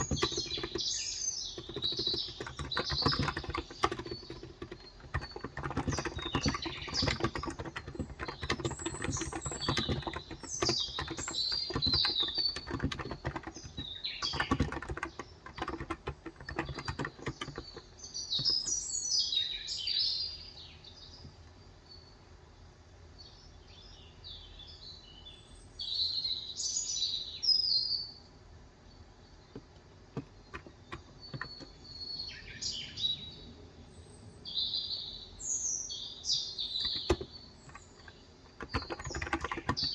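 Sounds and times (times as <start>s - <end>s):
fast typing on keyboard: 0.0s - 18.8s, 29.6s - 31.9s, 36.6s - 39.9s
birds chirping: 0.0s - 22.2s, 29.2s - 39.9s.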